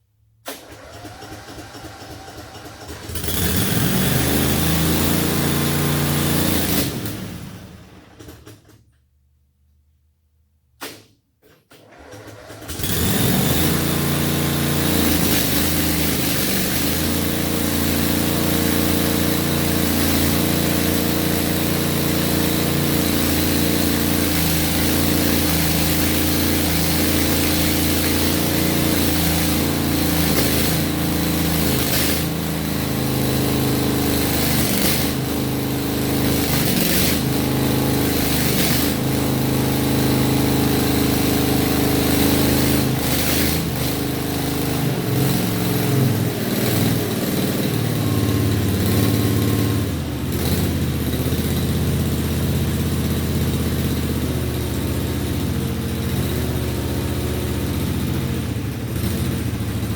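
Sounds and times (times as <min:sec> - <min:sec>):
engine starting and running: 0:00.4 - 0:09.1, 0:10.8 - 0:59.9.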